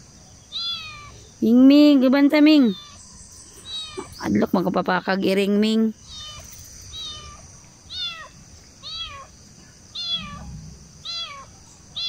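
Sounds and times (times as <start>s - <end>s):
cat meowing: 0.5s - 1.2s, 2.6s - 3.0s, 3.6s - 4.2s, 6.0s - 9.3s, 9.9s - 12.0s.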